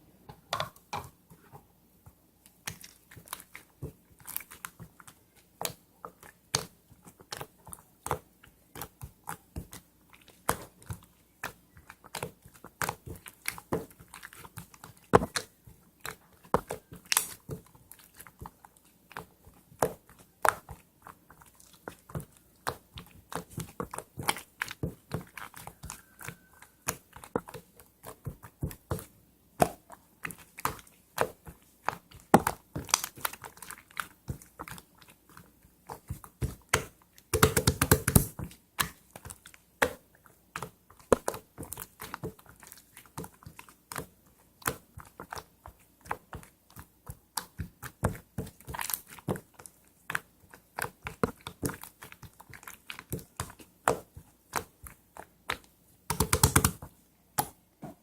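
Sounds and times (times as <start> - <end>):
crunchy chewing: 25.4 - 26.8.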